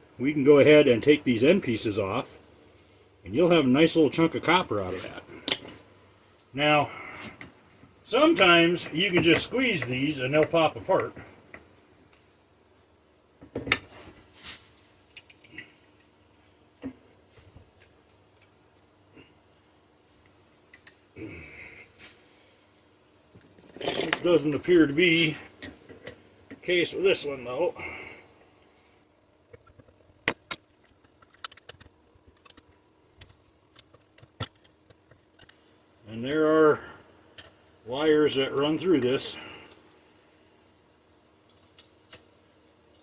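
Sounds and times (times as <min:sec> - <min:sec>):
metal parts clicking and clunking: 0:23.4 - 0:24.6, 0:29.6 - 0:35.6.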